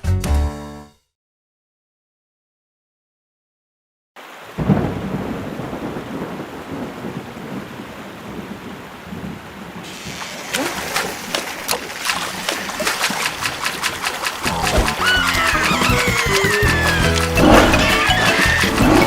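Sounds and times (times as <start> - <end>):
steady rain: 4.2 - 19.0
thunder rumbling: 4.6 - 9.9, 10.8 - 19.0.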